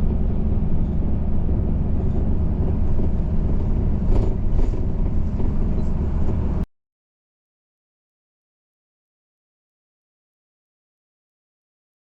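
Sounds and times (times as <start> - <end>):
moving vehicle rumble: 0.0 - 6.7.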